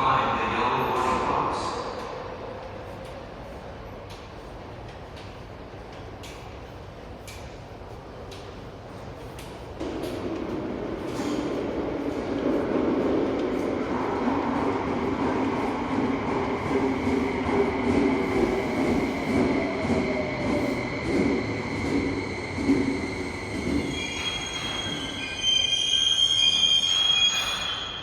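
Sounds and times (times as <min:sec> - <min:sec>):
subway train rumbling on rails: 0:00.0 - 0:28.0
high-pitched wheel squeal: 0:23.0 - 0:28.0.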